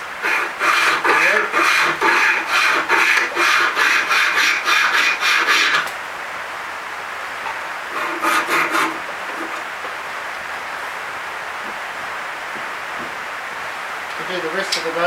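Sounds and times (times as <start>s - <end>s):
file scraping hardwood: 0.0s - 5.9s, 7.9s - 9.6s.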